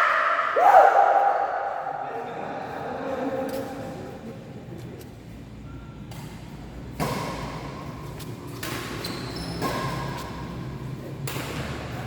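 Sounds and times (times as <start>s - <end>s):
court noise: 6.0s - 12.0s
badminton racket hits: 6.1s - 12.0s
shoe squeaks: 8.5s - 10.7s.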